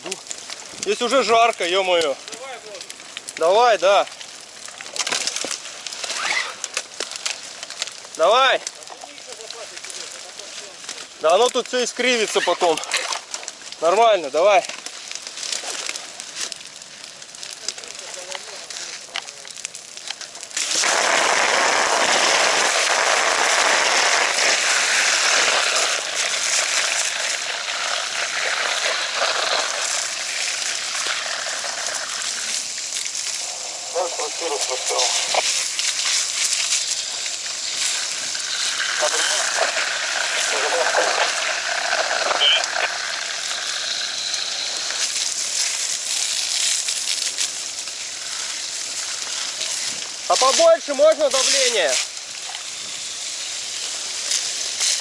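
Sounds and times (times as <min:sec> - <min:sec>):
fire crackling: 0:00.0 - 0:55.0
fire hose spraying water: 0:00.0 - 0:55.0.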